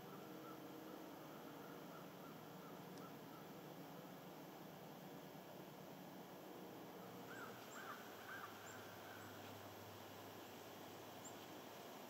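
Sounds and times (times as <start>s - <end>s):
distant bird calling: 0.0s - 3.6s, 7.0s - 9.5s.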